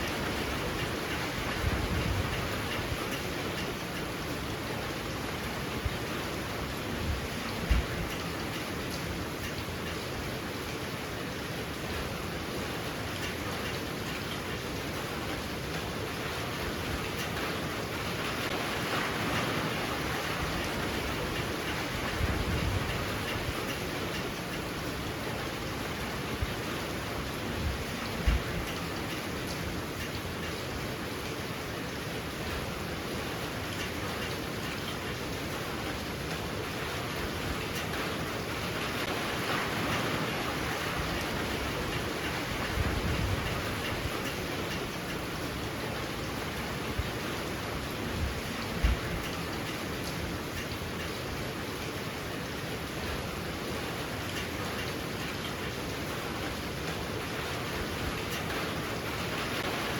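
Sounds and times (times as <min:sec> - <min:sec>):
strong wind gusts: 0:00.0 - 0:09.4, 0:16.2 - 0:29.0, 0:35.4 - 0:51.5
heavy rain pouring: 0:00.0 - 0:59.9.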